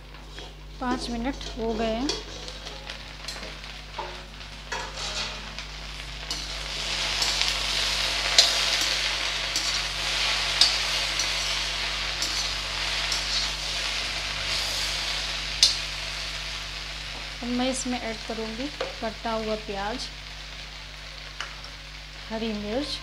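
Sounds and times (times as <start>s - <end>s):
okra sizzling in hot oil: 0.0s - 23.0s.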